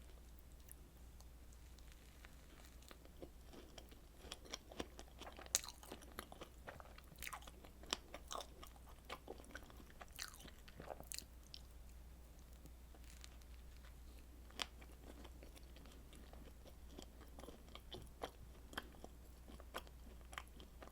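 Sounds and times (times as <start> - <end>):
biting and chewing dessert: 0.1 - 20.9.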